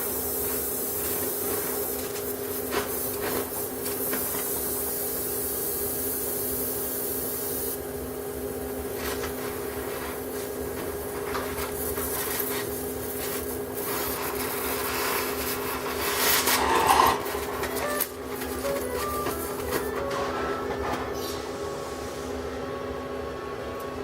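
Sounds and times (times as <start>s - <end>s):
machine hum: 7.8s - 24.0s
rough hissing noise: 8.9s - 20.1s.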